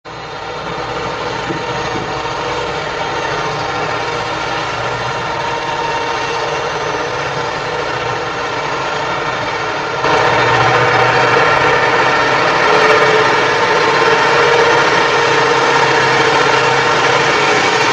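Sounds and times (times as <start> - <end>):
heavy machinery engine running: 0.1 - 17.9.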